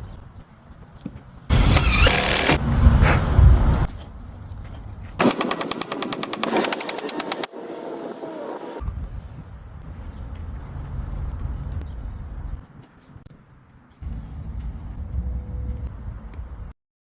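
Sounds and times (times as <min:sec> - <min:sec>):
power tool whining: 0:01.5 - 0:02.6
heavy low rumble: 0:02.6 - 0:03.9.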